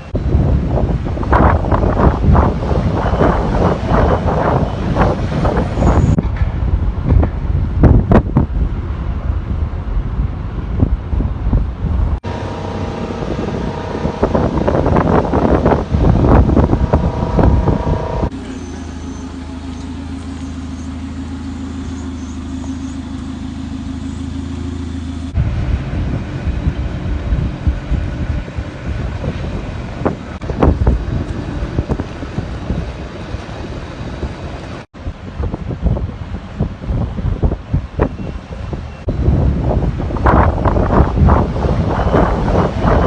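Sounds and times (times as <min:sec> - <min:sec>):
wind on microphone: 0:00.0 - 0:18.3, 0:25.4 - 0:43.0
low engine hum: 0:00.0 - 0:43.0
rough engine noise: 0:00.0 - 0:43.0
machinery whine: 0:12.2 - 0:34.8.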